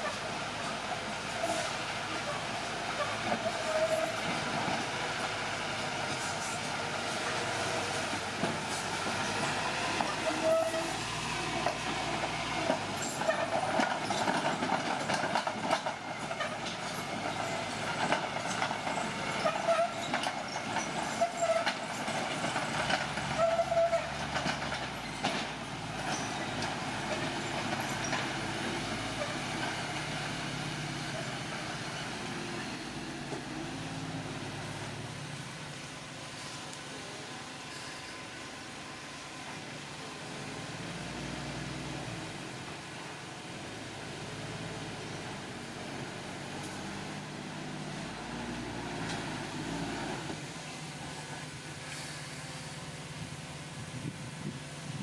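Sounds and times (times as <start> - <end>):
bulldozer engine running: 0.0 - 37.5
steel tracks clanking: 0.0 - 38.8
metal squealing on metal: 3.0 - 4.3, 8.7 - 11.8, 18.9 - 22.0, 23.3 - 24.4.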